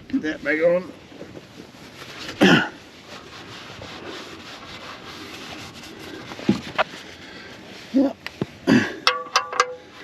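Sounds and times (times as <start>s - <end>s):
hands scraping metal: 3.0s - 7.1s.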